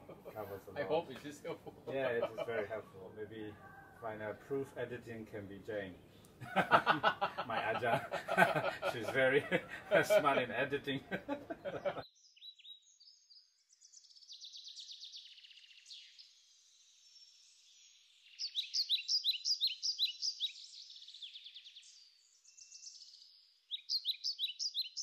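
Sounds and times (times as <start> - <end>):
songbird trilling: 11.7 - 25.0
quick down-slurred bird chirps: 17.9 - 25.0.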